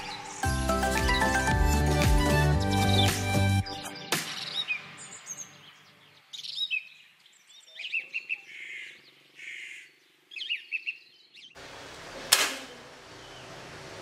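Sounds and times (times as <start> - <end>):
small birds chirping: 2.8 - 11.6, 12.7 - 14.0.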